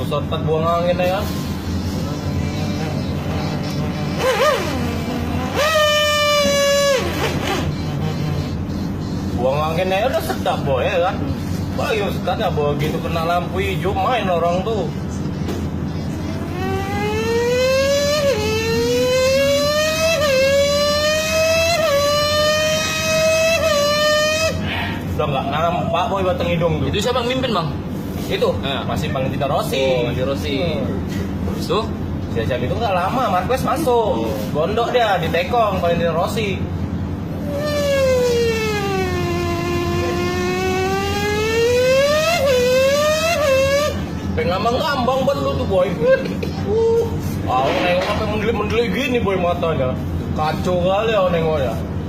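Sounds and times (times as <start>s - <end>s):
person imitating motorcycle revving: 2.0s - 8.7s, 16.2s - 24.8s, 37.4s - 44.0s.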